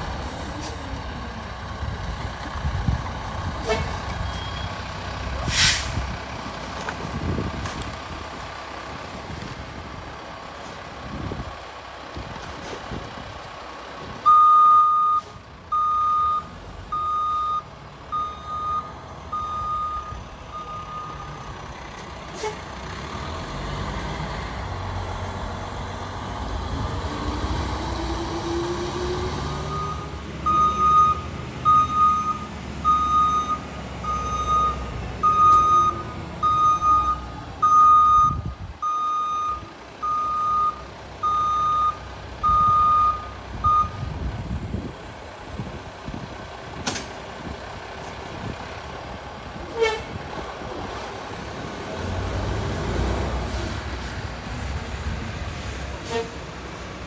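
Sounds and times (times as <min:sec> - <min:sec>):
truck backup alarm beeping: 0:04.2 - 0:05.1, 0:14.2 - 0:22.3, 0:29.7 - 0:44.1
truck engine running: 0:29.8 - 0:57.0.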